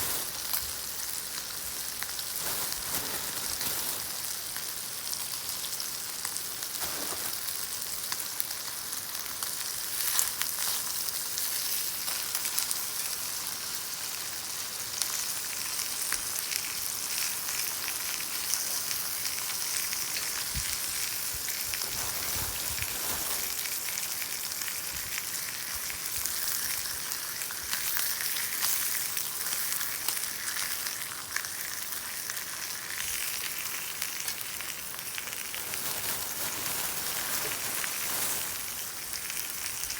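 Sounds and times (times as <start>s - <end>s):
beef sizzling in a pan: 0.0s - 39.9s.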